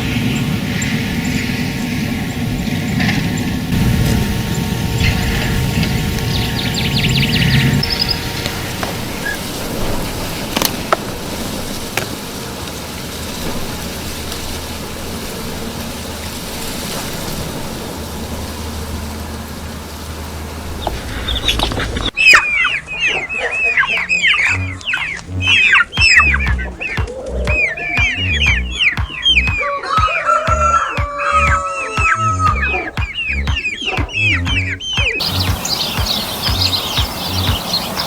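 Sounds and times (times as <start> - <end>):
noisy background: 0.0 - 29.6, 30.5 - 38.0
quick downward bird chirps: 20.7 - 30.0, 31.3 - 38.0.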